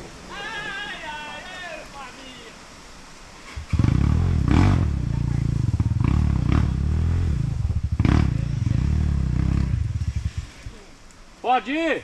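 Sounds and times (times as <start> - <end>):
motorcycle engine revving: 3.6 - 10.7.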